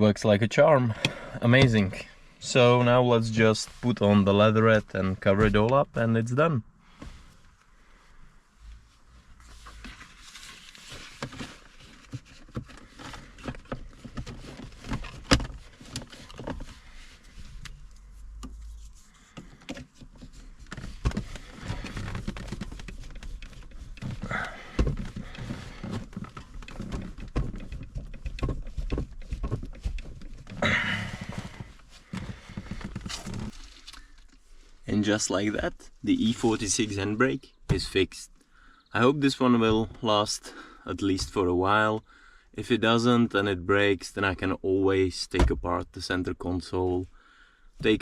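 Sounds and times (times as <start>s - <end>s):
trim rustling: 8.9s - 34.8s.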